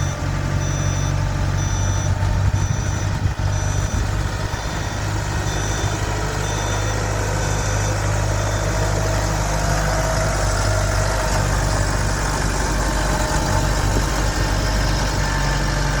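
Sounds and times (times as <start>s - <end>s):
backup alarm beeping: 0.0s - 9.3s
tractor diesel engine running: 0.0s - 16.0s.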